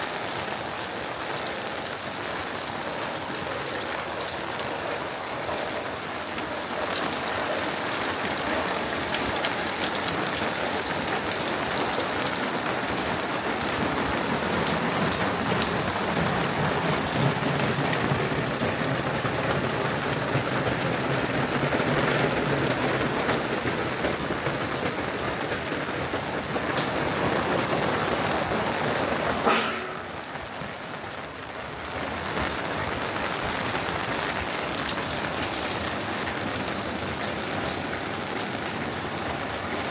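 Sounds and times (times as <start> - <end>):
rain pattering: 0.0 - 39.9
sharp knock: 29.4 - 30.4.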